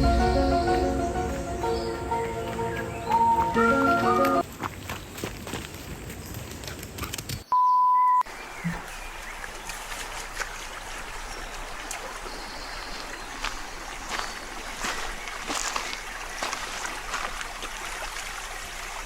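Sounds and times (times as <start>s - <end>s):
electronic beep: 7.5s - 8.2s
running water hiss: 8.3s - 19.0s.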